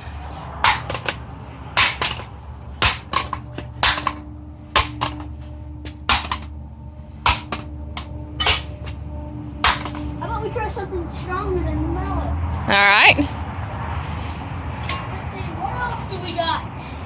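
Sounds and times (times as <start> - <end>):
mallet striking device: 1.8 - 6.5, 7.2 - 9.0, 9.6 - 10.2.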